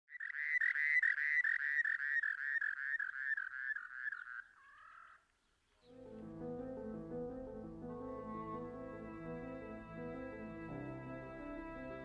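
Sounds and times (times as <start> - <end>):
drawn-out animal note: 5.9 - 12.0.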